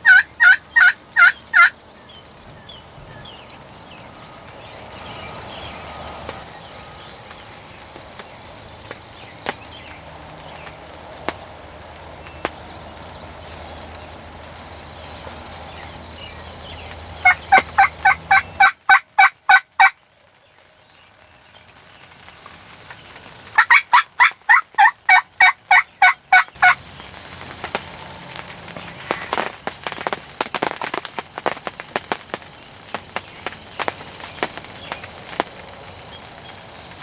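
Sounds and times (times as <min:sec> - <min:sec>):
turkey yelps: 0:00.0 - 0:01.8, 0:17.2 - 0:19.9, 0:23.6 - 0:26.8
steady rain: 0:00.0 - 0:37.0.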